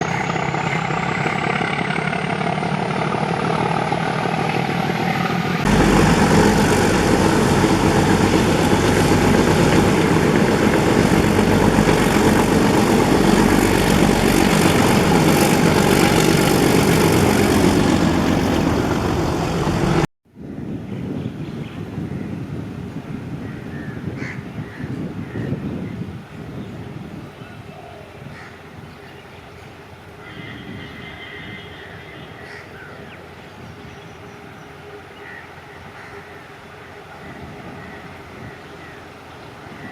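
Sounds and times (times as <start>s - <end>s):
diesel locomotive engine droning: 0.0s - 20.1s, 29.8s - 39.9s.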